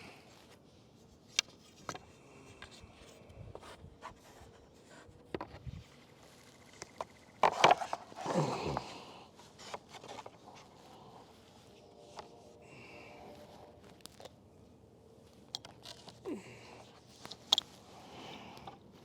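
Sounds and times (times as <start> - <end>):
rustling scrape: 7.4 - 14.3.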